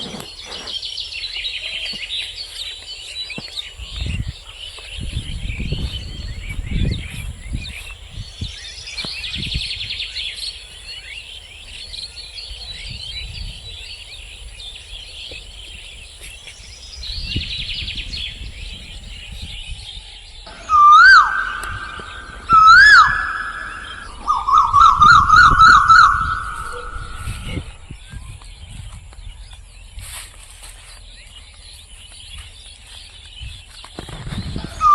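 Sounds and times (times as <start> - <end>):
small birds chirping: 0.0 - 34.9
siren wailing: 20.5 - 27.7.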